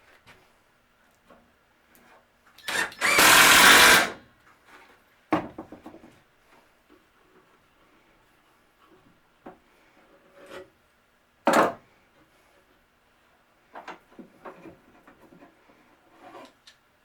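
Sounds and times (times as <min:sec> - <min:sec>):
power drill running: 0:02.7 - 0:04.2.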